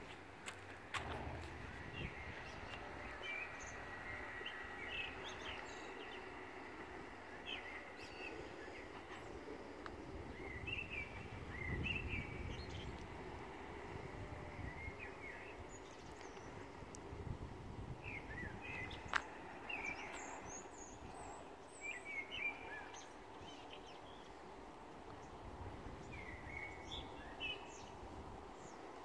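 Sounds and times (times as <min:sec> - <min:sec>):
steady low rumble: 0:00.0 - 0:21.4
small birds chirping: 0:00.6 - 0:17.2, 0:18.0 - 0:29.0.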